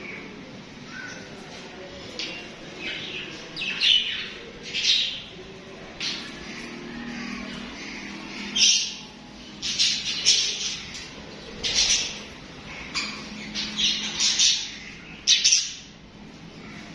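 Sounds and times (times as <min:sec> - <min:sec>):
budgerigars warbling chatter: 0:02.2 - 0:16.0
budgerigars chirping: 0:06.1 - 0:15.9.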